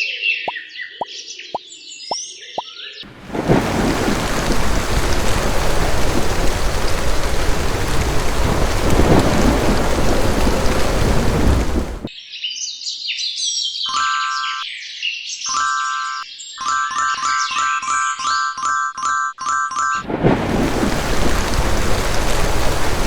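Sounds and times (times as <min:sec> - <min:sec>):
heavy rain: 0:03.1 - 0:12.1, 0:20.0 - 0:23.0
rumbling thunder: 0:03.1 - 0:12.1, 0:20.0 - 0:23.0.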